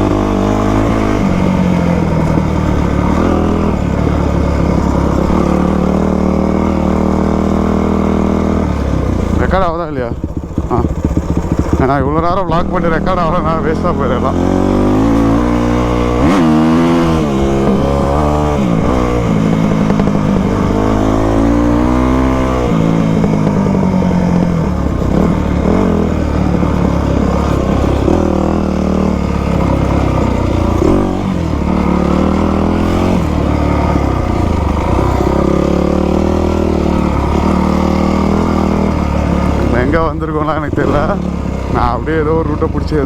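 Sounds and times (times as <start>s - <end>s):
two-stroke dirt bike engine: 0.0s - 43.0s.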